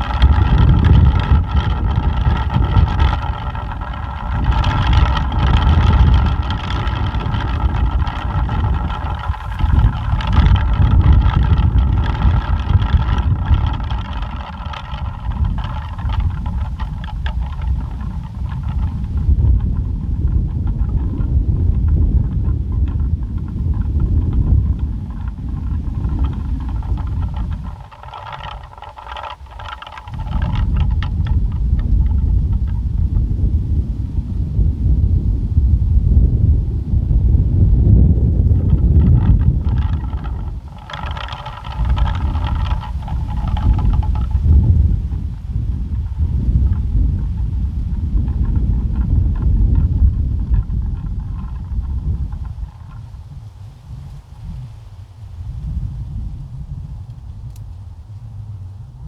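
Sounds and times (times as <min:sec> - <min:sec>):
pinwheel whirring: 0:00.0 - 0:32.8, 0:38.4 - 0:45.4
wind buffeting microphone: 0:00.0 - 0:59.0.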